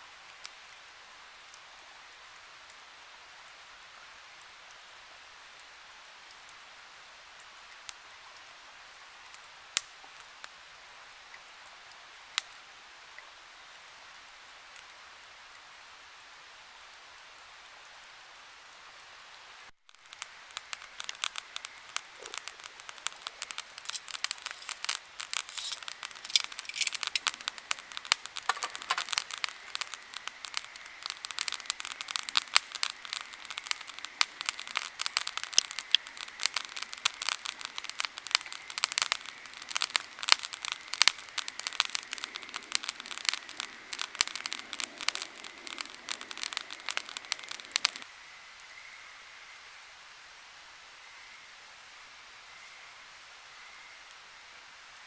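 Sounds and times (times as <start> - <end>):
campfire crackling: 0.0 - 48.7
flowing water hiss: 0.0 - 55.0.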